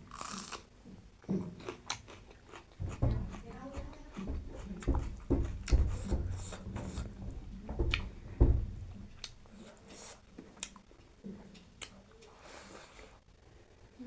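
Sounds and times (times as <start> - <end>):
person chewing: 0.0 - 0.7, 1.3 - 3.1
heavy low knocks: 2.8 - 9.5.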